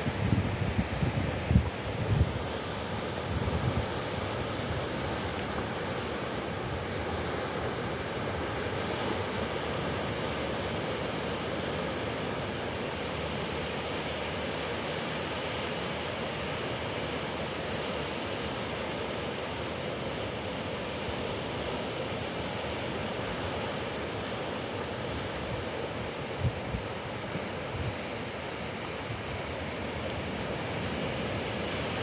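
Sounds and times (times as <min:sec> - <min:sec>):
wind rumbling on the microphone: 0:00.0 - 0:07.5, 0:25.1 - 0:28.2
ocean surf: 0:00.0 - 0:32.0.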